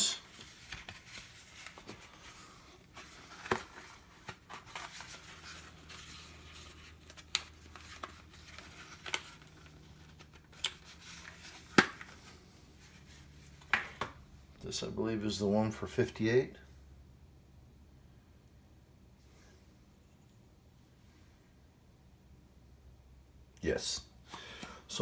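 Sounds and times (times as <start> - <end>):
objects and packaging handled: 0.0 - 14.2
faint low hum: 0.0 - 24.2.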